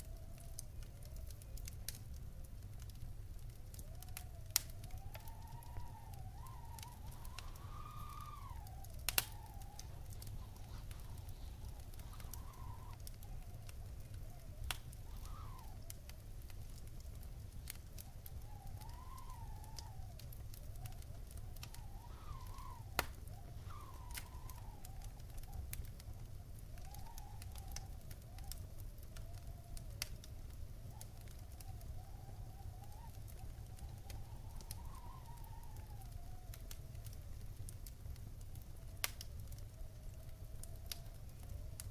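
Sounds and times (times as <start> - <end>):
wood fire crackling: 0.0 - 41.9
thin wavering whistling tone: 3.8 - 16.2, 17.8 - 25.6, 26.7 - 29.8, 30.8 - 36.5.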